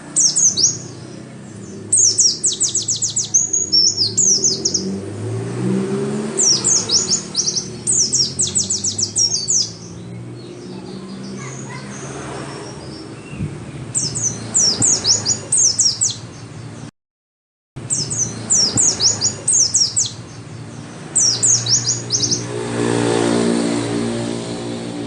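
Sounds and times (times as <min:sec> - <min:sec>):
bird twittering: 0:00.0 - 0:05.0, 0:06.3 - 0:16.9, 0:17.8 - 0:22.5
low drone: 0:20.9 - 0:25.0.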